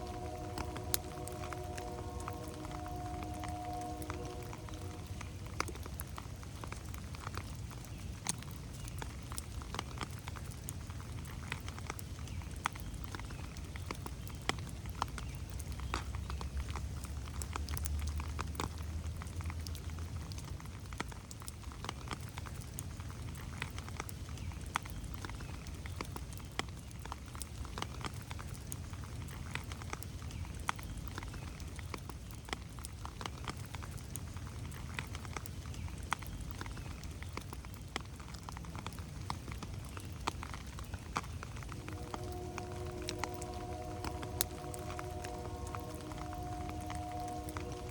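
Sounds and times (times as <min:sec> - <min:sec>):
low rumble: 0:00.0 - 0:06.4, 0:41.6 - 0:47.9
rain pattering on leaves: 0:00.0 - 0:47.9.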